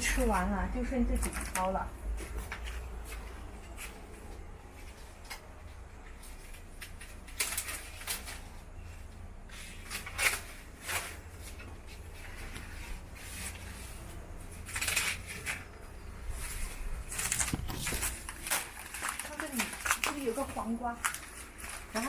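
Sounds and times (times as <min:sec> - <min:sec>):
corn leaves rustling and crackling: 0:04.8 - 0:22.0.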